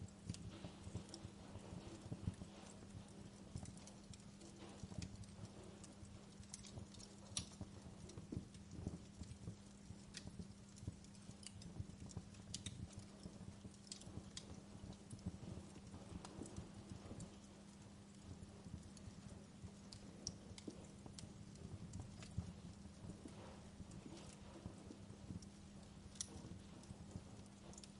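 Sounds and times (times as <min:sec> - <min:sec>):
faint steady low hum: 0:00.0 - 0:27.9
low rumble of burning logs: 0:00.0 - 0:27.9
wood fire crackling: 0:00.0 - 0:27.9.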